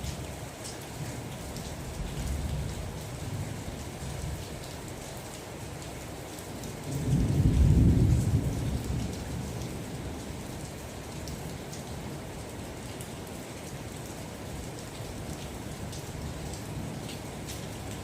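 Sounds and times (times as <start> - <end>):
steady rain with drop ticks: 0.0 - 18.0
low thunder rumble: 6.9 - 10.0.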